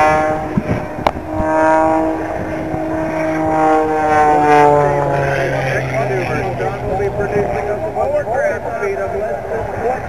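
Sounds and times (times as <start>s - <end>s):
biplane engine droning overhead: 0.0s - 10.0s.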